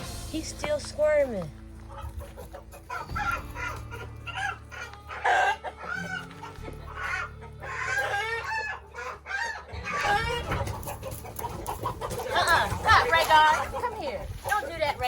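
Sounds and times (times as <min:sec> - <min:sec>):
chickens clucking and squawking: 0:01.6 - 0:15.0.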